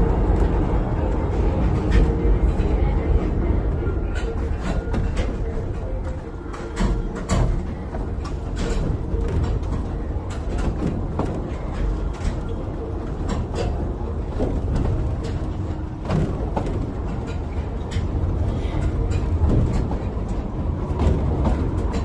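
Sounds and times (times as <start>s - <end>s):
train rumbling on track: 0.0s - 22.0s
wheels clicking and rattling: 0.0s - 22.0s.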